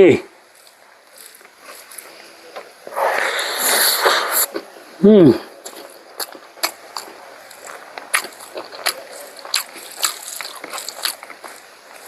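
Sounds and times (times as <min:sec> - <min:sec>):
wet chewing: 0:05.6 - 0:12.0.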